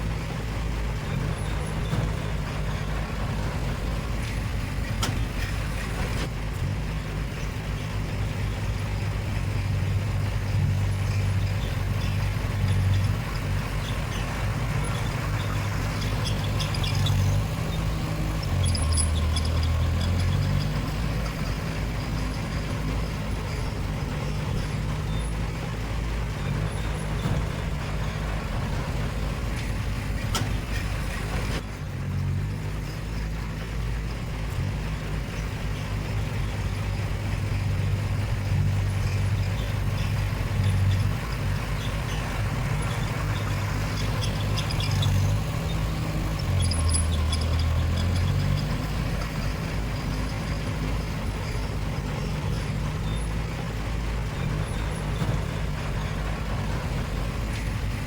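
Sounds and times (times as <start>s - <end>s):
diesel machinery engine drone: 0.0s - 58.0s.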